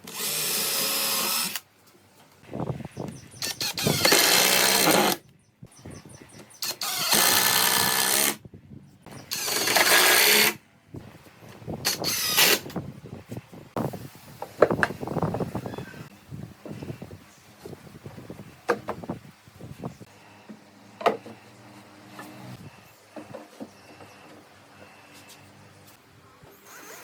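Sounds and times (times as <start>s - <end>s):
handheld power tool running: 0.0s - 1.6s, 3.4s - 5.2s, 6.6s - 8.4s, 9.3s - 10.6s.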